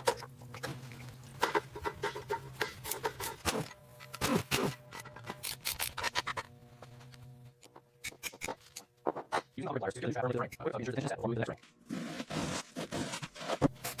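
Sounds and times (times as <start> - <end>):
hand rubbing and scraping: 11.6 - 14.0.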